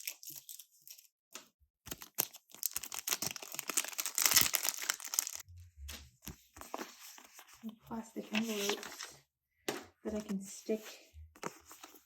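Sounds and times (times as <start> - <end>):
plastic packaging crinkling: 1.9 - 5.4.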